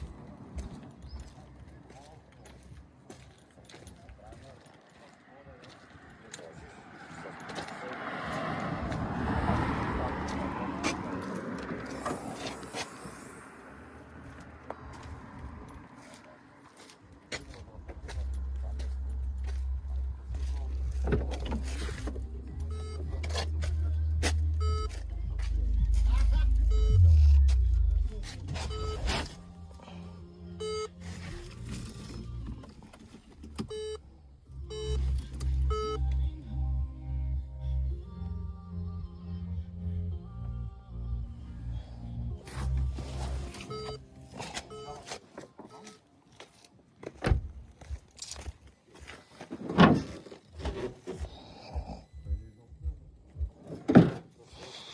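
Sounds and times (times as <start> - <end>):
car engine running: 18.1 - 29.9
low rumble: 18.2 - 30.8
short electronic beeps: 22.6 - 23.4, 24.5 - 25.1, 26.0 - 29.4, 30.6 - 32.3, 33.6 - 34.0, 34.6 - 36.1, 43.2 - 45.1.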